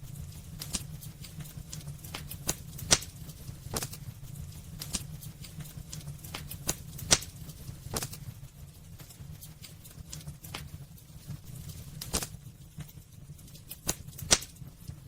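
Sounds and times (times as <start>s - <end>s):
burning logs crackling and popping: 0.0s - 15.0s
fire low rumble: 0.0s - 15.0s.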